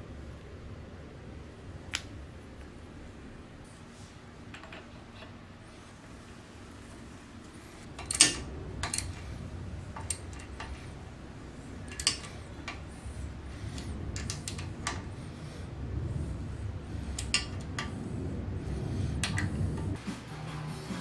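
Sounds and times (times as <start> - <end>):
low rumble: 7.8 - 20.0
metal parts clinking and knocking: 7.9 - 9.3, 11.9 - 12.8.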